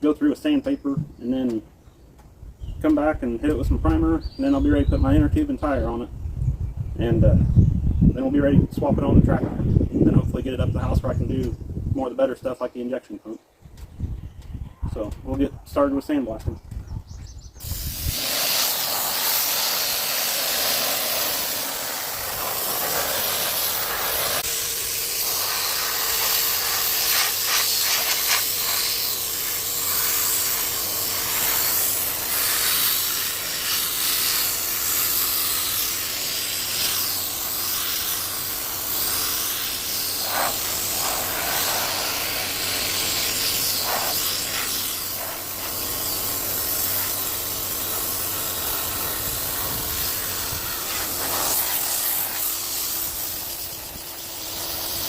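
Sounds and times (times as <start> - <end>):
sandblaster hissing against metal: 17.6 - 55.0.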